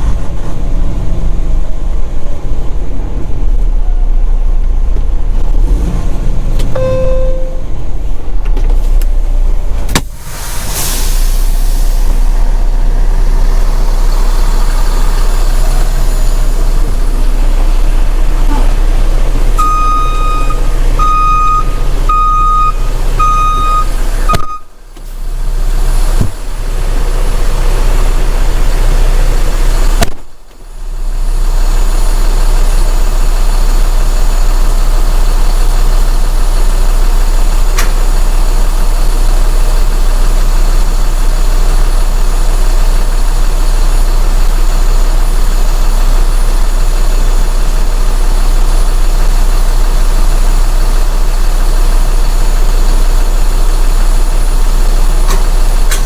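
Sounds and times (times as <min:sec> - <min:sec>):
diesel truck engine running: 0:00.0 - 0:56.0
reversing alarm beeping: 0:06.7 - 0:07.8, 0:19.6 - 0:24.8.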